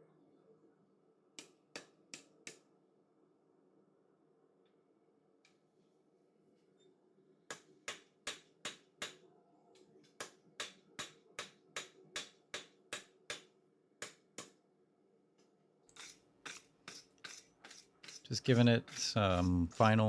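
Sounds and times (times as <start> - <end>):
wire brush scrubbing steel: 16.0 - 20.0.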